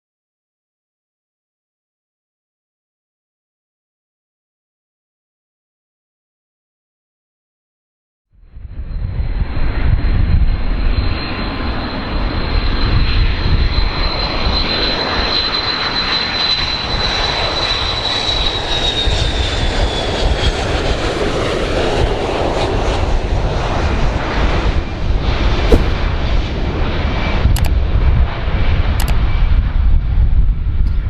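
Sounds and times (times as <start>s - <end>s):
airplane engines rumbling and whining: 8.5s - 31.0s.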